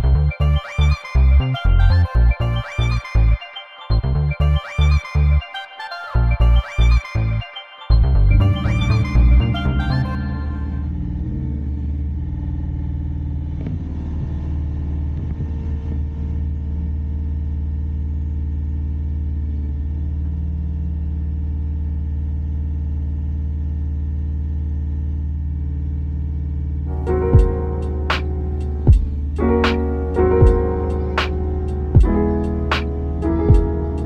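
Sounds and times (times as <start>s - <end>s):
tractor diesel engine running: 25.5s - 34.0s.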